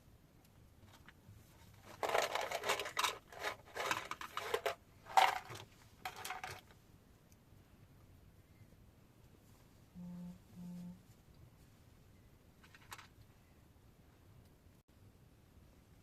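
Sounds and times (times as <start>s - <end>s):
rustling handling noise: 0.8s - 6.8s, 10.8s - 13.3s.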